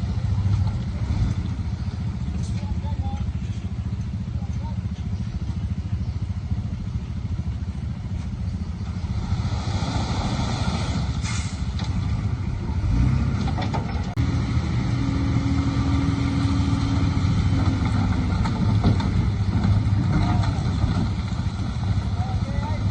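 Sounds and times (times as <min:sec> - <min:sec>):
earthmoving vehicle engine running: 0:00.0 - 0:22.9
clatter: 0:17.5 - 0:22.2.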